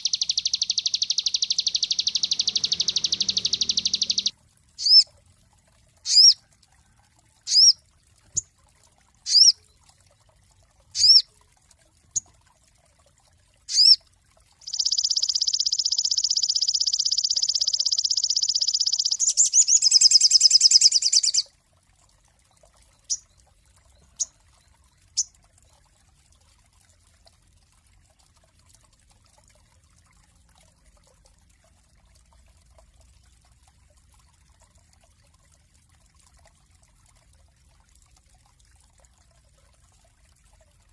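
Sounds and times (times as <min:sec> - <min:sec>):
songbird chirps and trills: 0:00.0 - 0:05.1, 0:06.0 - 0:06.4, 0:07.5 - 0:08.6, 0:09.2 - 0:11.4, 0:13.6 - 0:14.0, 0:14.6 - 0:21.5, 0:22.4 - 0:26.0.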